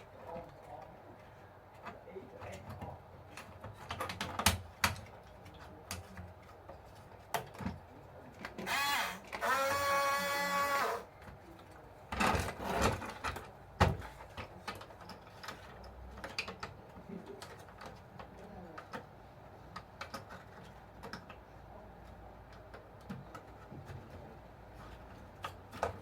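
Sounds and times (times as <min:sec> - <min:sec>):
small electric motor whining: 0:08.7 - 0:11.0.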